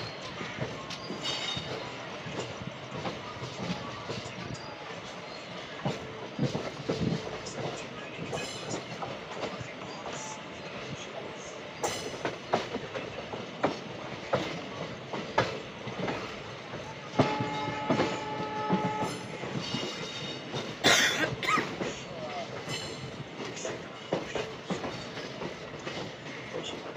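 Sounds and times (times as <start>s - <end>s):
train running noise: 0.0s - 26.9s
wheels clacking over rail joints: 11.3s - 26.9s.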